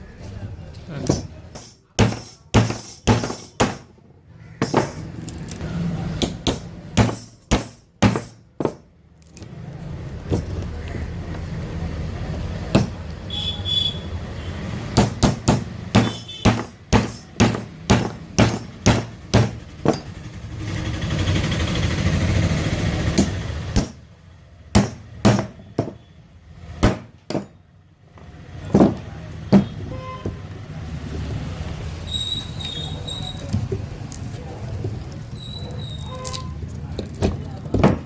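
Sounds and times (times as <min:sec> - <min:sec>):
hand tool knocking on metal: 0:01.0 - 0:03.9, 0:06.2 - 0:08.9, 0:15.0 - 0:20.2.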